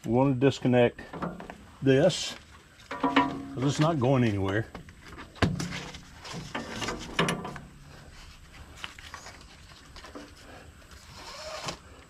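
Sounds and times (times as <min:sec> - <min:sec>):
metal clicks and clanks of hitch: 0:05.5 - 0:07.9.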